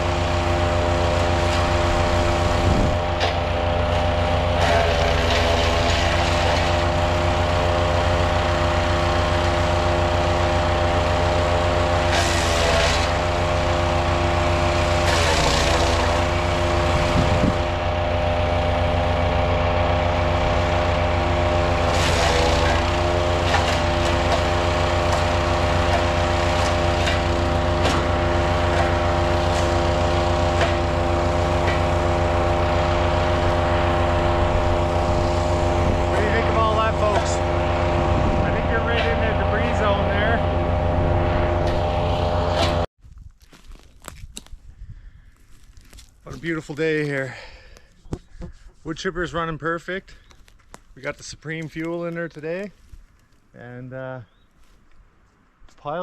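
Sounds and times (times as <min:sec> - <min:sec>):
wood chipper engine running: 0:00.0 - 0:42.9, 0:43.5 - 0:56.0
branches crunching and splintering: 0:41.6 - 0:48.0, 0:50.2 - 0:53.6.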